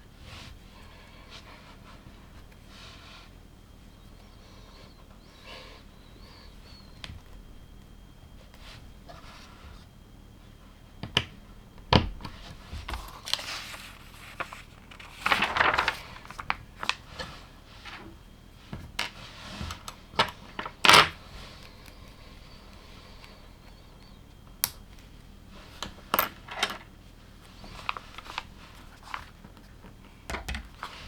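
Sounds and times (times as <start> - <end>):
rustling and scraping: 12.3 - 21.6.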